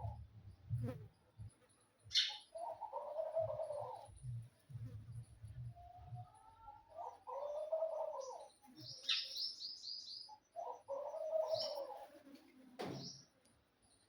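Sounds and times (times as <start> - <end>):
small bird chirping: 0.0 - 2.9, 6.2 - 12.0
pigeon cooing: 2.6 - 4.0, 6.9 - 8.5, 10.6 - 12.2.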